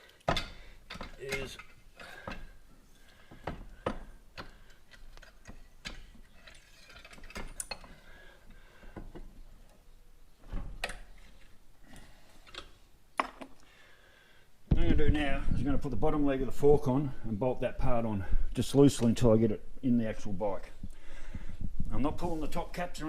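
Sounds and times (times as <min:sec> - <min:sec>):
metal parts and tools clicking: 0:00.2 - 0:02.6, 0:03.4 - 0:08.1.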